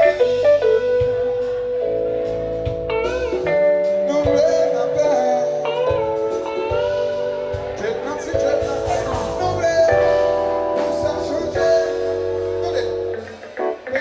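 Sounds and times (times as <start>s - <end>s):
live band music: 0.0s - 14.0s
person singing: 3.1s - 14.0s.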